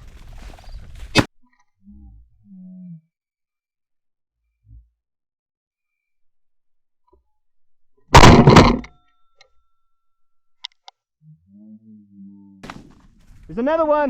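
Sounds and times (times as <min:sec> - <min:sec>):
shotgun blast: 0:08.2 - 0:08.8.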